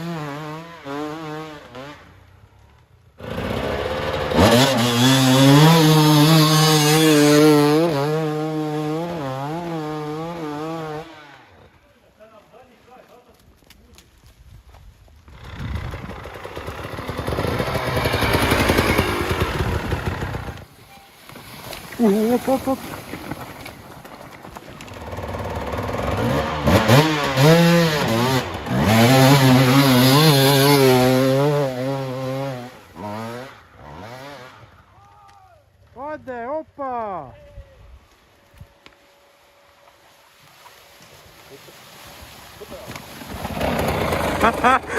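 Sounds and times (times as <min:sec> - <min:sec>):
dirt bike engine revving: 0:00.0 - 0:02.2, 0:03.2 - 0:11.6, 0:15.3 - 0:20.6, 0:25.0 - 0:34.8, 0:43.3 - 0:44.9.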